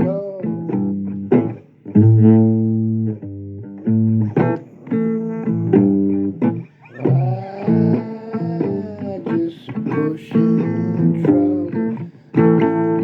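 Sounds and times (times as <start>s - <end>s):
blues guitar picking notes: 0.0s - 13.0s.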